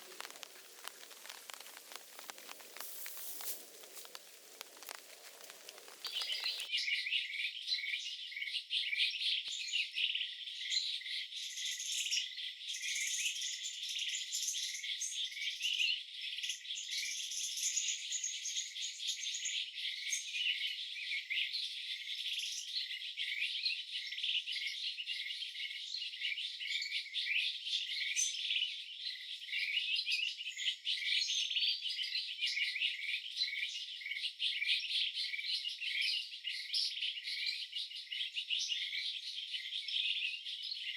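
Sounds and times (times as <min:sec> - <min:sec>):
birds chirping: 0:00.0 - 0:06.7
insects chirping: 0:00.0 - 0:06.7.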